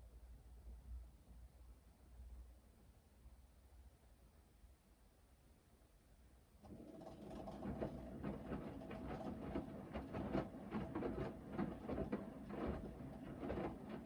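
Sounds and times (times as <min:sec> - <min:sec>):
washing machine motor hum: 0:06.6 - 0:14.0.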